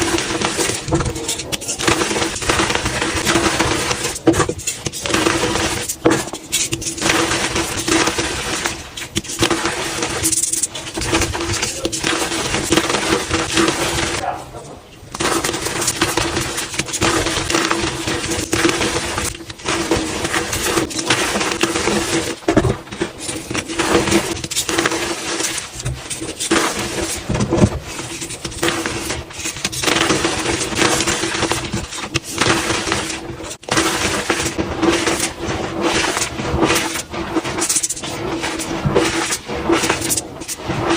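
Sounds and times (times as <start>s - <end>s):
chalk crunching: 0.0s - 40.9s.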